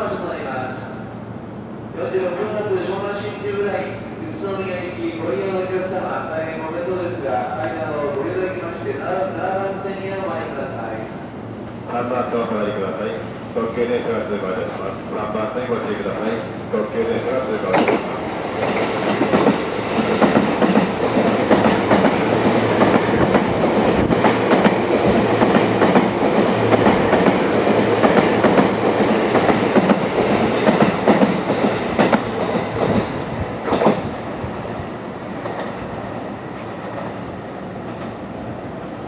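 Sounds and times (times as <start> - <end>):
train wheels clicking over rail joints: 17.6 - 34.1.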